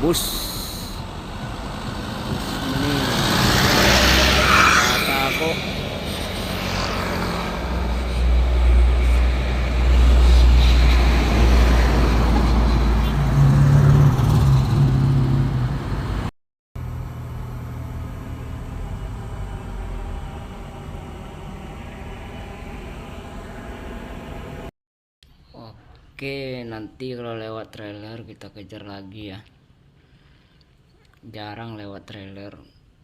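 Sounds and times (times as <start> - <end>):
heavy vehicle engine running: 0.0 - 16.2, 16.8 - 24.7
road noise: 0.0 - 24.7
steady engine hum: 0.0 - 24.7.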